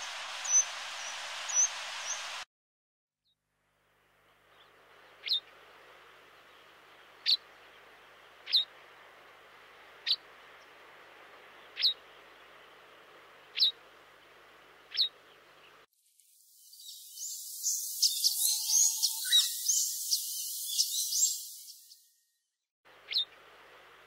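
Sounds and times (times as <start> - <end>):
bird calling with falling notes: 0.0 - 2.4, 16.6 - 22.0
faint background hiss: 0.0 - 2.4, 3.7 - 19.2, 22.9 - 24.0.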